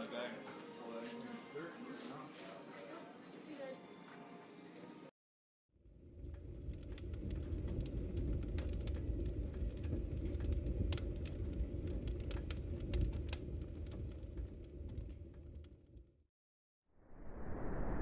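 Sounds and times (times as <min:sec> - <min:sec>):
fire crackling and popping: 0:05.8 - 0:16.2.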